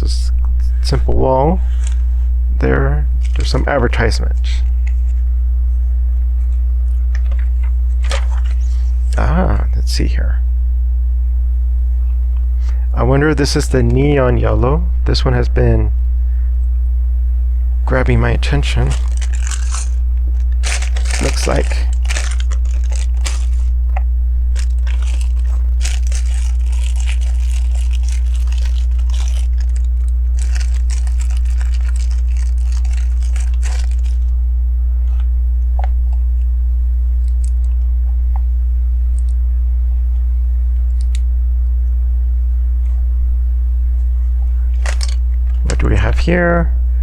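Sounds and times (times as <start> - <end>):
low electrical hum: 0.0 - 47.0
plastic bricks rustling and clattering: 18.9 - 19.9, 20.6 - 23.7, 24.6 - 34.2, 44.8 - 45.2.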